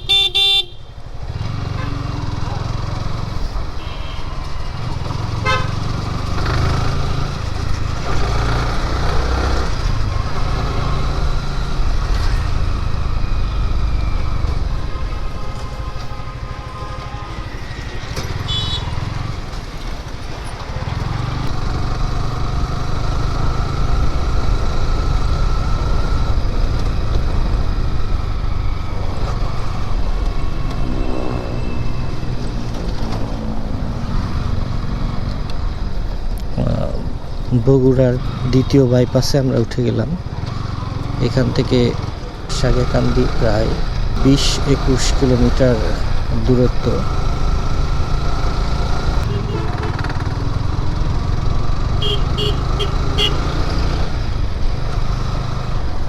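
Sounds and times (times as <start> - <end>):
vehicle horns tooting: 0.0 - 0.9, 3.5 - 7.3, 14.4 - 19.4, 49.2 - 50.2, 52.0 - 53.8
motorcycle engine rumble: 0.0 - 56.0.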